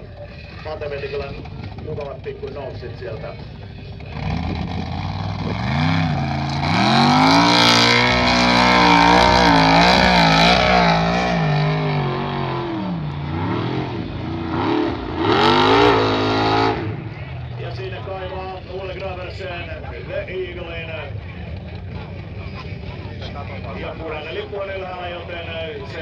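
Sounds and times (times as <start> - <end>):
car engine at high revs: 4.0 - 17.4.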